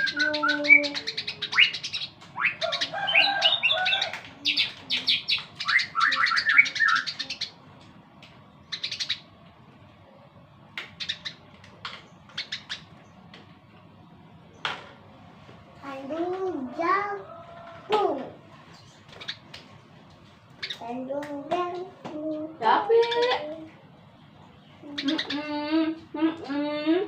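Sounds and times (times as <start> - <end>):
sparrows chirping: 0.0 - 7.7, 8.5 - 9.4, 10.8 - 14.7, 17.3 - 21.1, 22.6 - 26.4.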